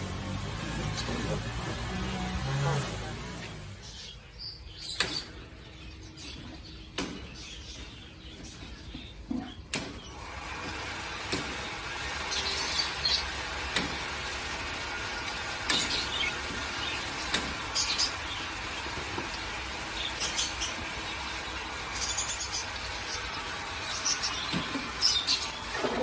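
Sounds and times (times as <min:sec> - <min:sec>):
budgerigars chirping: 0:15.3 - 0:25.8.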